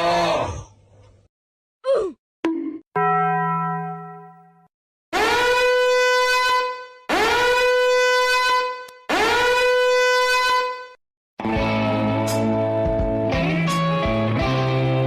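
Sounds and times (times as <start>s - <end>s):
buzzy horn blasts: 5.2s - 11.0s.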